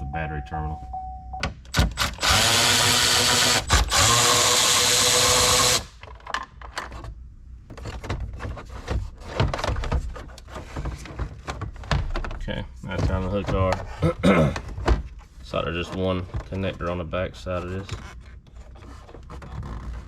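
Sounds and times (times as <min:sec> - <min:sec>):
cordless power driver running: 0:01.8 - 0:06.0.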